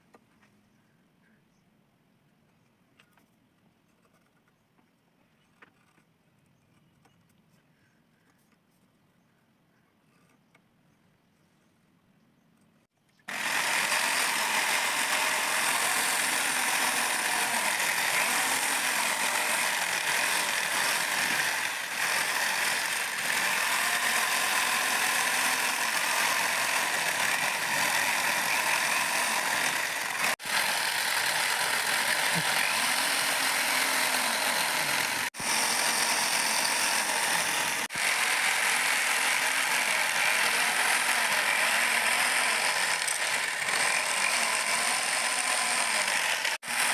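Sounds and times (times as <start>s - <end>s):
power tool rasping on wood: 13.3s - 46.9s.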